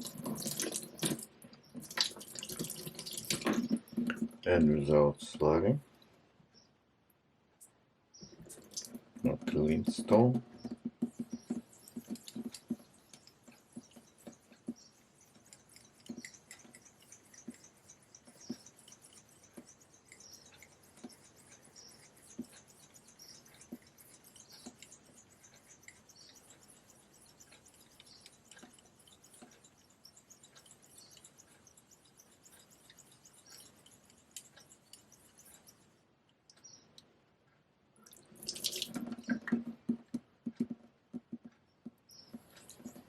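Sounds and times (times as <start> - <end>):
razor scraping on whetstone: 11.2 - 35.9.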